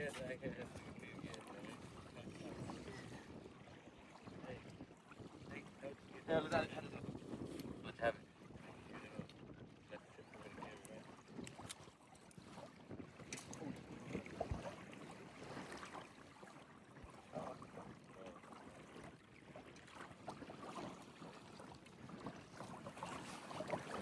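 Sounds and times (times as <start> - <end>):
wind on microphone: 0.0 - 18.0
water lapping: 0.0 - 24.0.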